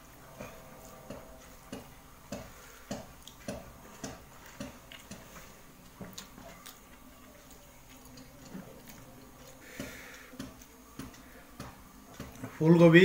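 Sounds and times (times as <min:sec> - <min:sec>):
person chewing with wet mouth clicks: 0:01.7 - 0:12.5.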